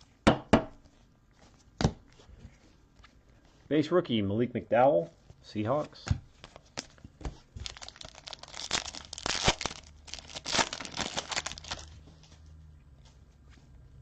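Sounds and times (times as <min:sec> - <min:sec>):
foil wrapper crinkling and tearing: 0:07.6 - 0:12.1.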